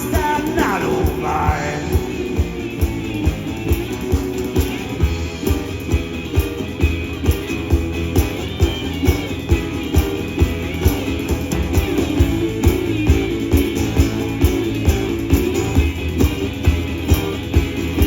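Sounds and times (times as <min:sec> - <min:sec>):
blues band playing: 0:00.0 - 0:18.0
guitar: 0:00.0 - 0:18.0
steady drum beat: 0:00.0 - 0:18.0.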